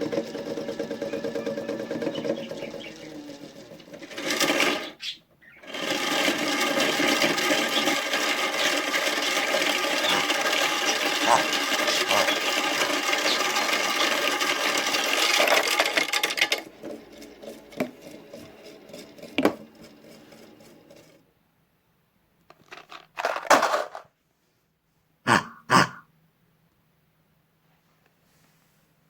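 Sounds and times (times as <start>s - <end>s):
objects rattling in drum: 0.0s - 5.0s, 5.6s - 21.2s, 22.6s - 24.1s
toy washing machine running: 0.0s - 21.2s, 22.6s - 24.0s.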